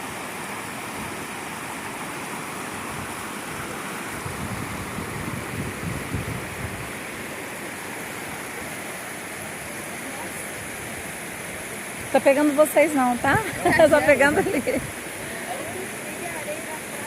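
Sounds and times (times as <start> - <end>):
stream rushing: 0.0 - 17.0
wind buffeting microphone: 4.2 - 7.1, 13.1 - 15.2.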